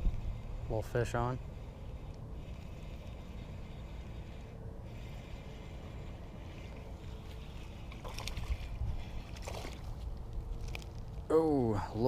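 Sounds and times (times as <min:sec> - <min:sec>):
wind rumble on microphone: 0:00.0 - 0:00.8, 0:08.1 - 0:11.3.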